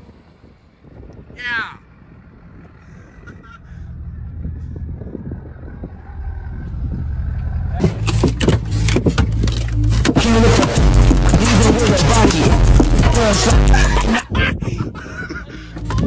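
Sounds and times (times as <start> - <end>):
truck engine running: 1.9 - 14.2
dense knocks and rushing noise: 10.0 - 14.3.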